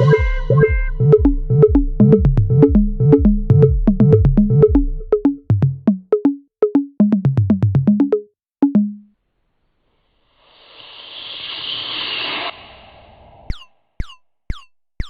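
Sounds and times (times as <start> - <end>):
deep electronic bass line: 0.0 - 9.1
fast electronic beat: 0.0 - 9.1, 13.5 - 14.8.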